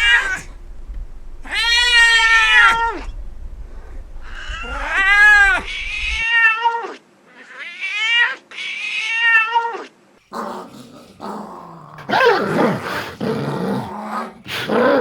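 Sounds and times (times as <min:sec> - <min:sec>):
cat meowing: 0:00.0 - 0:00.5, 0:01.5 - 0:03.1, 0:04.2 - 0:09.9.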